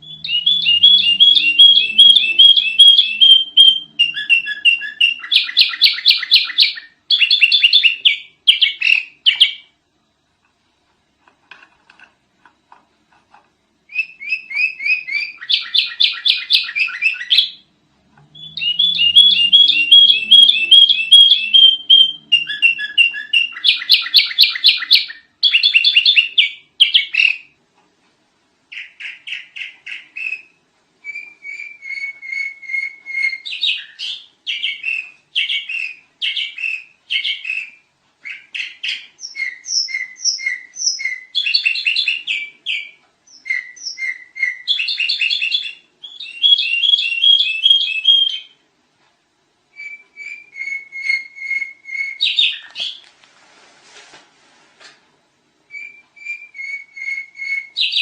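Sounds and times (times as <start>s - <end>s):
bird singing rapid chirps: 0.0s - 9.7s, 13.9s - 27.5s, 28.7s - 48.6s, 49.8s - 53.0s, 55.7s - 58.0s.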